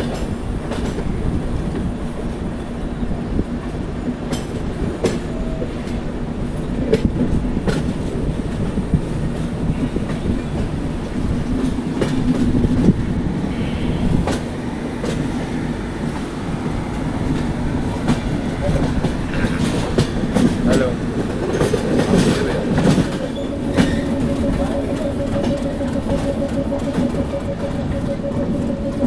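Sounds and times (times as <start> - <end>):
train rumbling: 0.0 - 29.0
wheels clicking over rail joints: 14.2 - 28.7.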